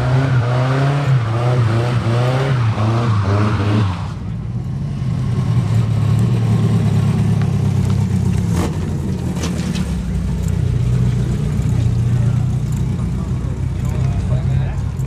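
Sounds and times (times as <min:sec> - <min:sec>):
car engine running with low hum: 0:04.2 - 0:15.0.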